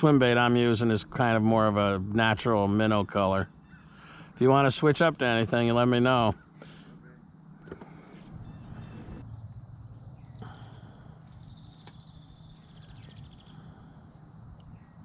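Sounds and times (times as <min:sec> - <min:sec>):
crickets trilling: 0:00.0 - 0:15.0
low rumble: 0:08.2 - 0:14.0.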